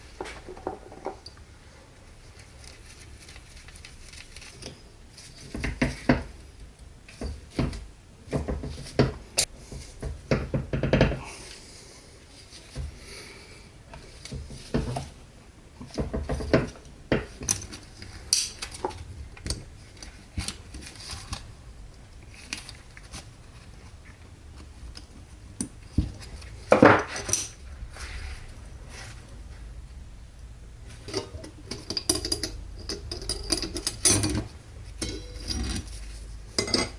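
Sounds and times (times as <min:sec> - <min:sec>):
metal parts and tools clinking: 0:31.0 - 0:36.9.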